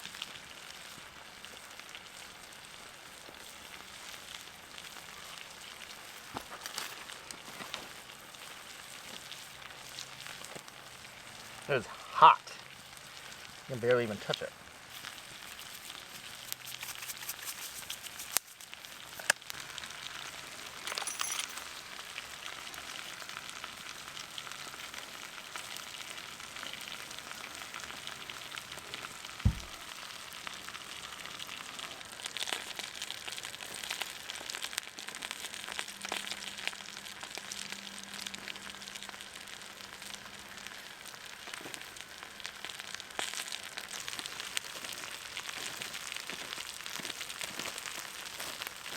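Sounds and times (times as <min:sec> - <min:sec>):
meat sizzling on coals: 0:00.0 - 0:20.9, 0:21.5 - 0:48.9
fire crackling: 0:00.0 - 0:48.9
dull thump: 0:29.4 - 0:29.8.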